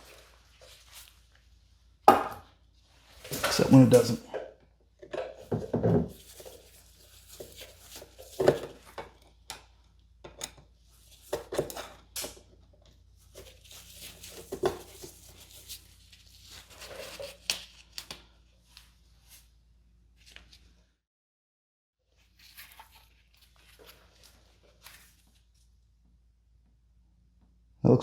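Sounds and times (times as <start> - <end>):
handling rustles and scrapes: 0.0 - 1.8, 2.8 - 4.4, 5.0 - 9.4, 10.8 - 12.4, 13.1 - 20.8, 22.1 - 25.8.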